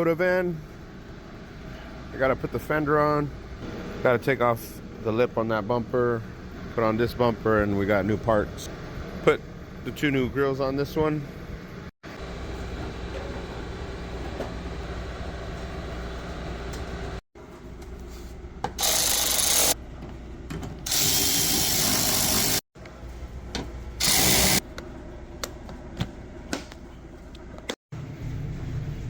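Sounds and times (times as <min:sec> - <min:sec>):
steady background hum: 0:00.0 - 0:29.0
power tool running: 0:18.8 - 0:19.8, 0:20.9 - 0:22.7, 0:24.0 - 0:24.6.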